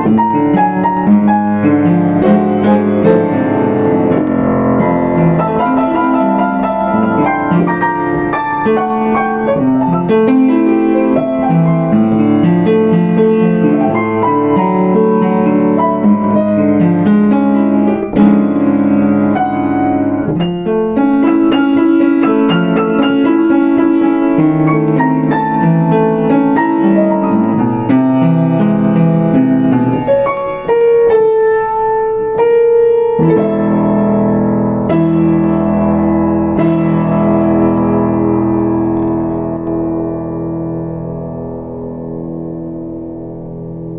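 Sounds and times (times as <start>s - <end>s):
upright piano playing: 0.0s - 43.9s.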